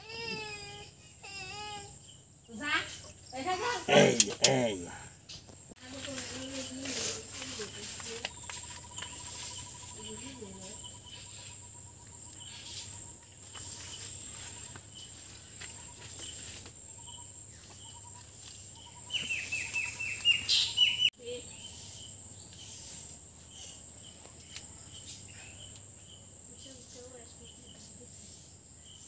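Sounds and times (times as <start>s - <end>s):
high insect drone: 0.0s - 20.2s
bird chirping: 6.4s - 27.8s.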